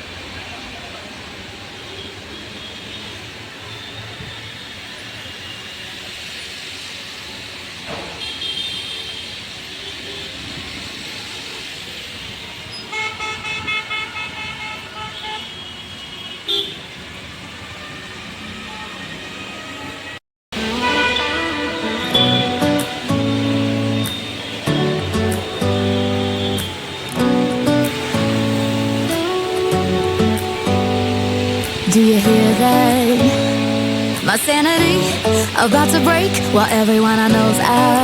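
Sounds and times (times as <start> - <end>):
traffic din: 0.0 - 38.0
vehicle horns honking: 8.2 - 9.3, 12.8 - 16.8, 17.8 - 34.2.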